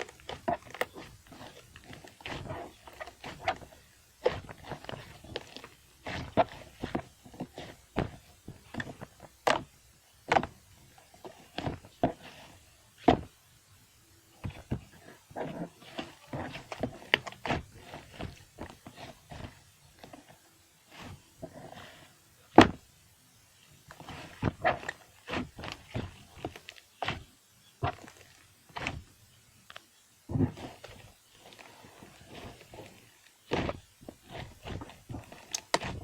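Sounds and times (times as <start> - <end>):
slime squished by hand: 32.2 - 36.0.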